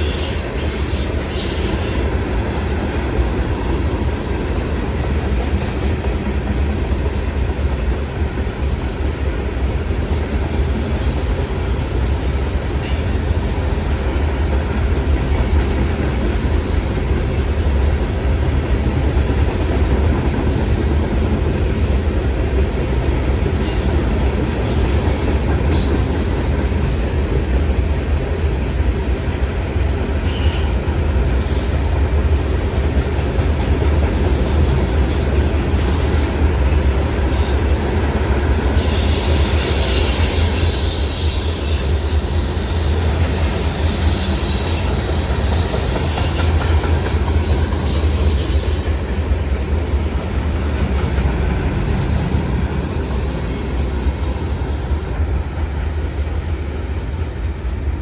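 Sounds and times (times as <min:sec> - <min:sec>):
train rumbling: 0:00.0 - 0:58.0
wheel-on-rail squeal: 0:23.6 - 0:24.6, 0:30.2 - 0:30.9, 0:38.8 - 0:49.0.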